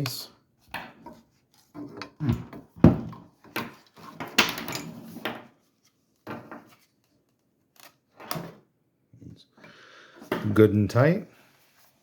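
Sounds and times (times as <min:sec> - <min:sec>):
hard plastic knocking and clattering: 0:00.7 - 0:05.5.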